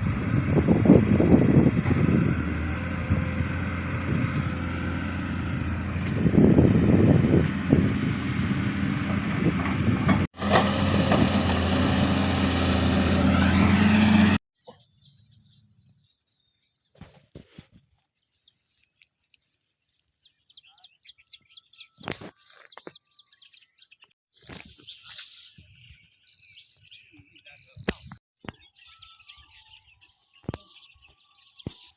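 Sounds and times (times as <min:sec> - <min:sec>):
engine humming: 0:00.0 - 0:14.4.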